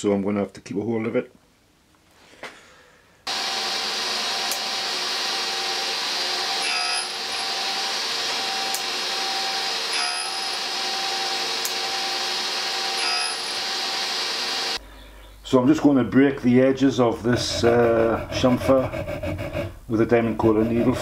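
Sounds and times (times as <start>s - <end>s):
grinding wheel hissing on metal: 3.3s - 14.8s
machine hum: 3.3s - 15.0s.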